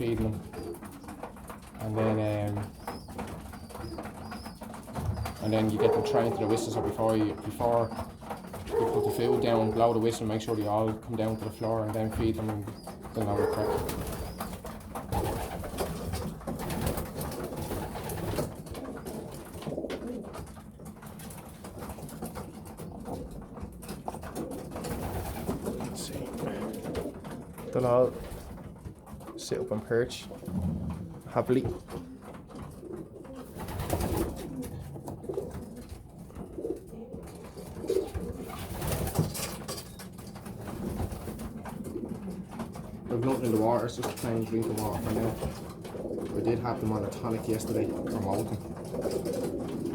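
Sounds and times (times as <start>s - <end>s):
pigeons cooing: 0.0s - 49.9s.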